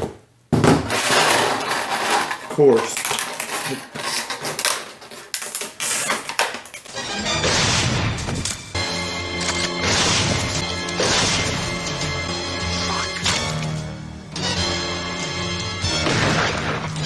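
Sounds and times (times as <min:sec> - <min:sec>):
plastic packaging rattling: 0:00.0 - 0:06.9.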